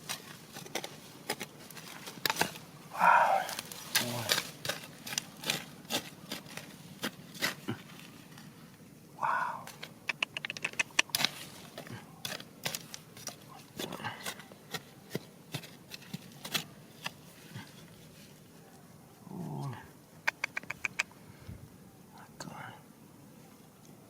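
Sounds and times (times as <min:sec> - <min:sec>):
stones clicking during digging: 0:00.0 - 0:08.4, 0:09.6 - 0:17.9.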